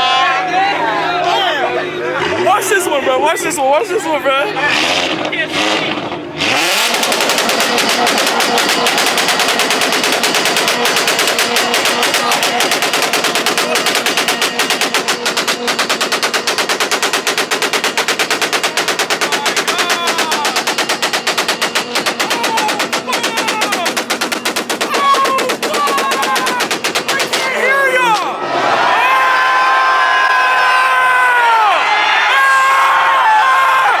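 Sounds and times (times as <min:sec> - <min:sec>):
exhaust popping: 0:01.7 - 0:28.4
car engine at rev limiter: 0:04.4 - 0:27.4.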